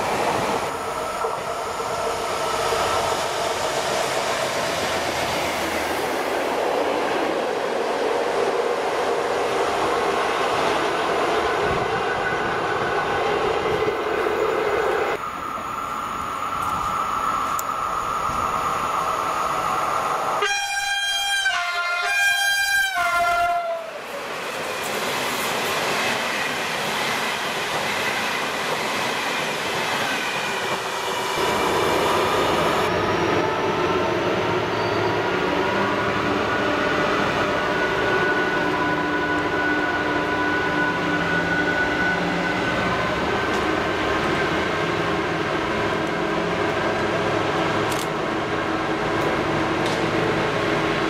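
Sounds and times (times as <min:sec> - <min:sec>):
diesel locomotive engine drone: 0:00.0 - 0:28.9, 0:29.6 - 0:51.0
passing train rumble: 0:00.0 - 0:51.0
train horn blasts: 0:20.4 - 0:24.0.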